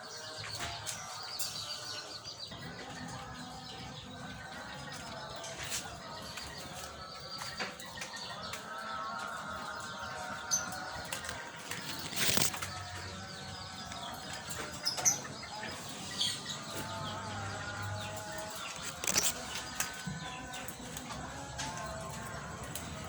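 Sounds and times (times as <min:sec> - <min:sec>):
birds flapping wings: 0:11.1 - 0:12.7.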